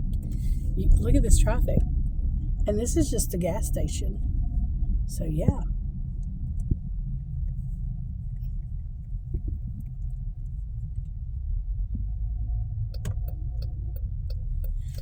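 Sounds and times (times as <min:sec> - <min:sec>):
car engine rumble inside cabin: 0:00.0 - 0:15.0.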